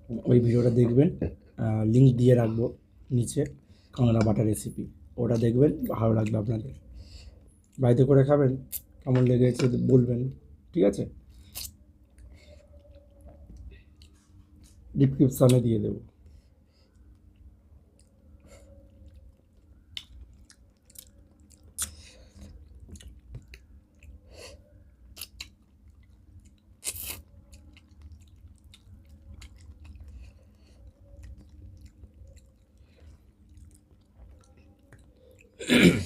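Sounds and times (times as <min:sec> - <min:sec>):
steady low hum: 0:00.0 - 0:36.0
mouth clicks and smacks: 0:11.4 - 0:12.4, 0:19.0 - 0:24.2, 0:25.0 - 0:35.6
person chewing and crunching: 0:11.4 - 0:13.0, 0:16.9 - 0:35.7.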